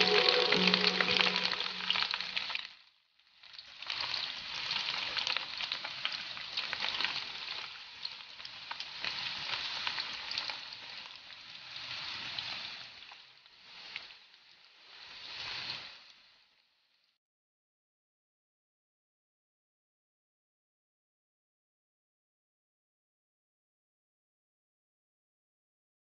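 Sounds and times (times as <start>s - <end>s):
frying sizzle with crackles: 0.0s - 17.2s.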